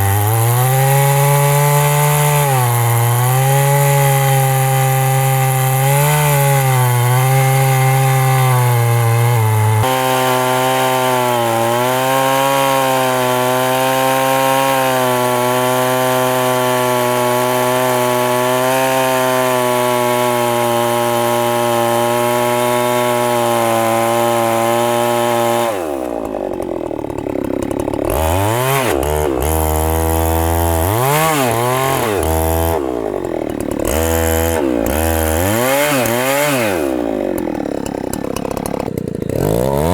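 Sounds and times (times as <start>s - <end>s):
chainsaw cutting and revving: 0.0s - 39.9s.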